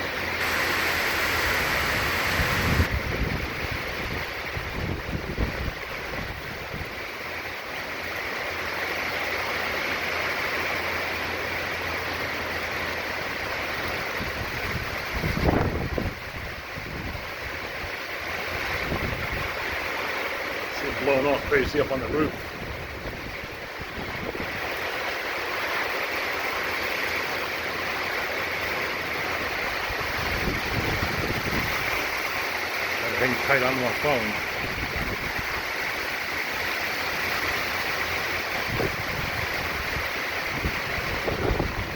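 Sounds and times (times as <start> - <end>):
storm wind: 0.0 - 7.1, 14.2 - 19.8, 20.8 - 24.8, 29.6 - 32.4, 34.0 - 35.9, 38.4 - 41.9
heavy rain pouring: 0.0 - 7.4, 12.9 - 41.9.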